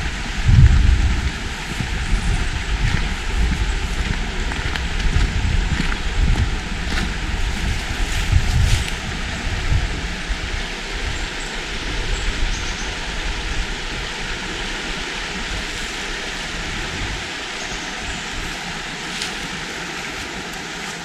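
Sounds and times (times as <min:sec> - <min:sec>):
river flowing over rocks: 0:00.0 - 0:21.0
wind buffeting microphone: 0:00.0 - 0:21.0.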